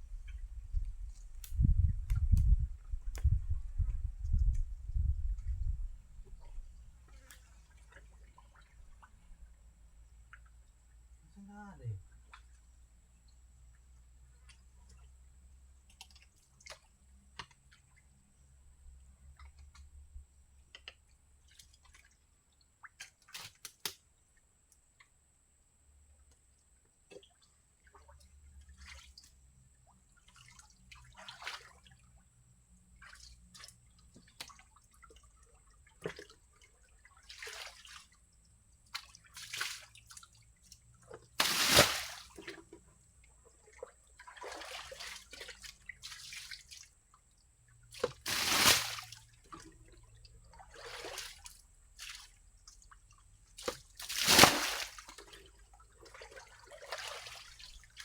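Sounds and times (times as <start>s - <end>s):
water splashing in shallow water: 0.0s - 10.8s, 20.6s - 24.1s, 27.0s - 58.0s.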